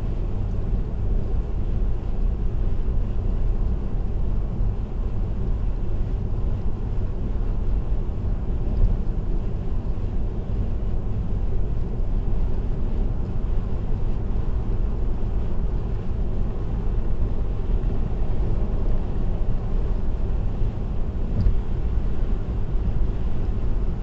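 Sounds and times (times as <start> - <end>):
car tyre and road noise: 0.0 - 24.0
car engine: 20.6 - 23.8.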